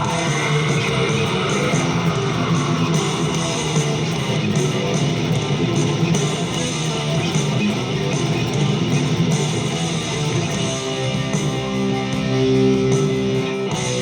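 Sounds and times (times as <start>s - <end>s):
bass guitar: 0.0s - 14.0s
distorted electric guitar: 0.0s - 14.0s.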